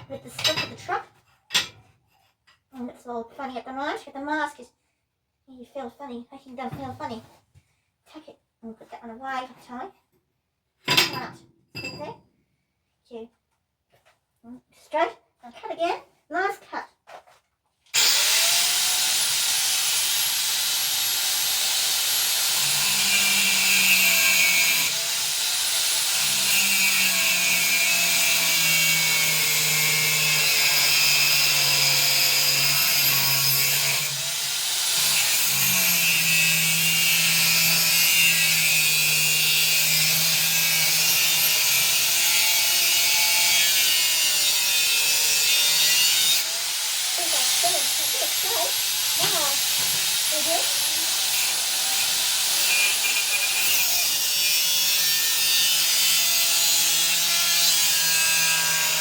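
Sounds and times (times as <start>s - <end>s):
angle grinder cutting steel: 18.0s - 59.0s.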